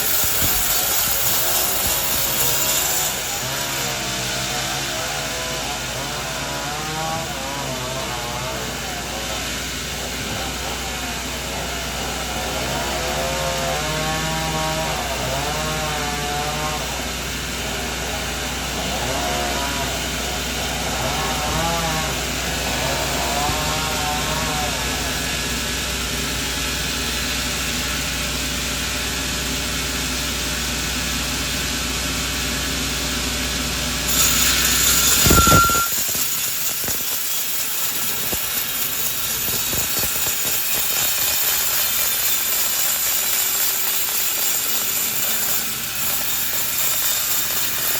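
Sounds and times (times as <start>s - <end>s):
saw whine: 0.0s - 47.9s
sawmill machinery humming: 0.0s - 47.9s
brief high tone: 34.1s - 36.0s.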